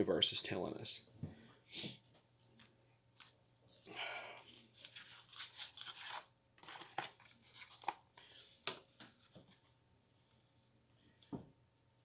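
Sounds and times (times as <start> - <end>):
cards shuffling: 4.6 - 9.6.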